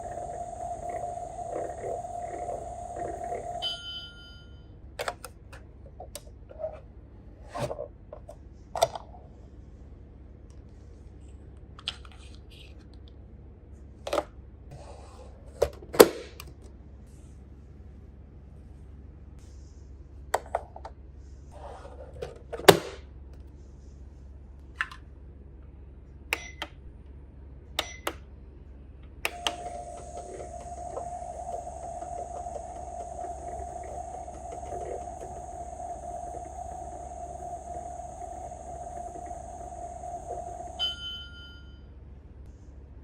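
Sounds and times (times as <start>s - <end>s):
electronic running hum: 0.0s - 4.4s, 29.3s - 41.7s.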